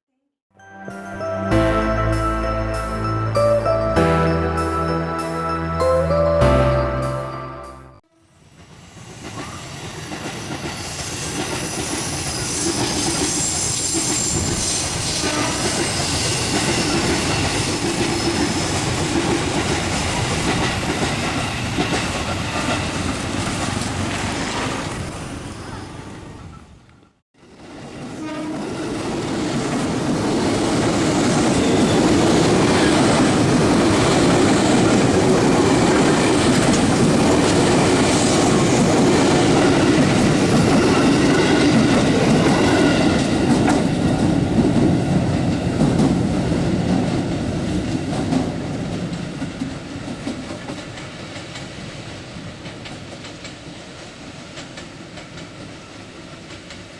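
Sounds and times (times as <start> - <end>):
electric train passing: 0.6 - 26.7, 27.4 - 54.4
train wheels clattering over rails: 27.5 - 56.9.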